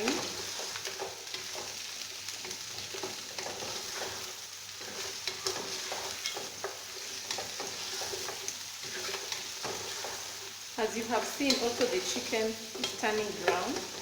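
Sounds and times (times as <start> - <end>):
food sizzling in hot oil: 0.0 - 14.0
spoon stirring and scraping pan: 0.0 - 14.0.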